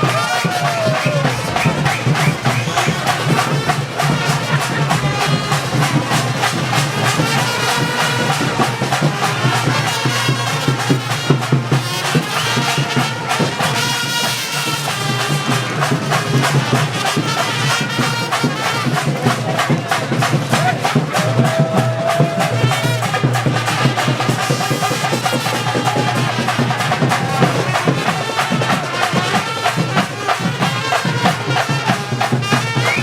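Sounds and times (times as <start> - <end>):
fast steady drumming: 0.0 - 33.0
horns playing a melody: 0.0 - 33.0.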